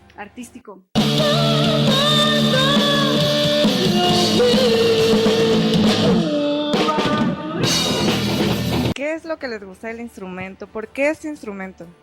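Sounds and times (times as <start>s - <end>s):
person singing: 1.0s - 8.1s
electric guitar: 1.0s - 9.0s
drums: 1.0s - 9.2s.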